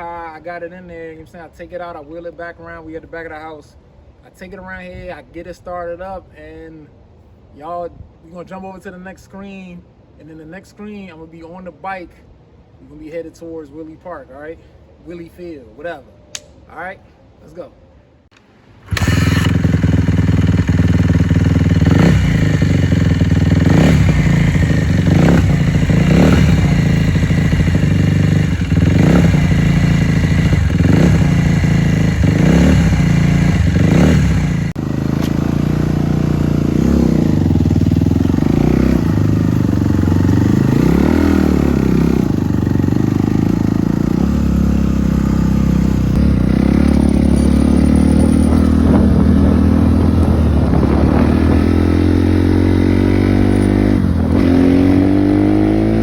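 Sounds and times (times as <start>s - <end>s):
dirt bike engine running: 18.9s - 56.0s.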